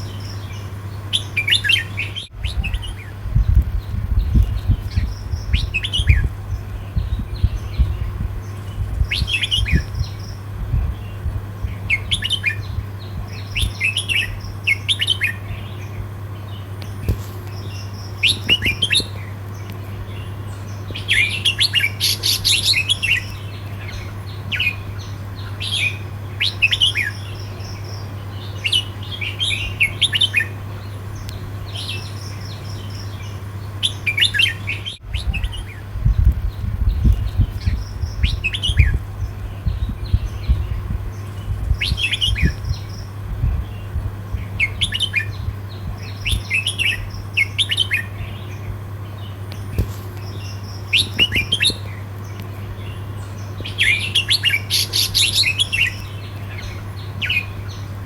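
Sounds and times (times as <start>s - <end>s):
bird singing warbling phrases: 0.0s - 58.0s
steady low hum: 0.0s - 58.0s
low rumbling thumps: 2.3s - 14.6s, 35.0s - 47.3s.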